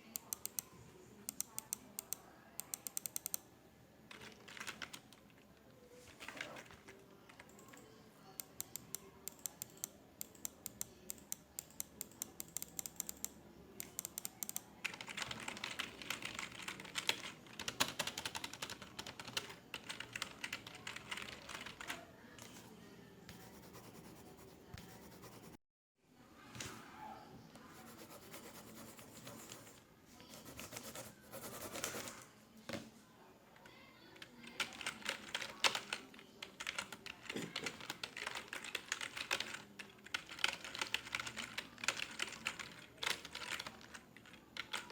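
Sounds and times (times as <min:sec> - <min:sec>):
computer keyboard typing: 0:00.0 - 0:03.4, 0:04.1 - 0:05.4, 0:06.2 - 0:22.6, 0:34.2 - 0:44.9.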